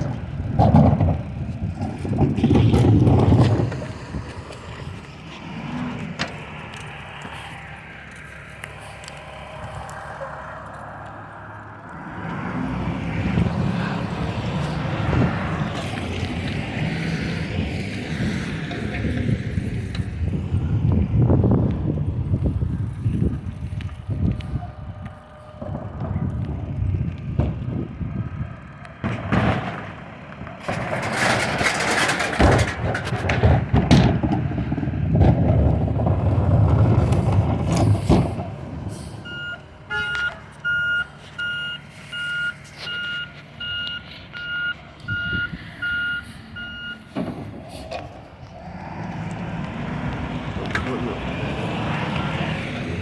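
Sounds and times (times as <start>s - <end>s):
diesel truck engine running: 0.0s - 53.0s
rushing clattering: 30.6s - 39.1s
reversing alarm beeping: 39.2s - 47.1s, 52.1s - 52.6s.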